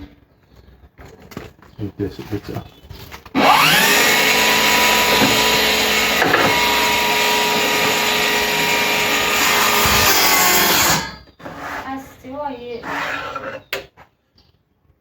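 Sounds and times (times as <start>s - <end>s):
table saw running with whine: 3.4s - 11.2s.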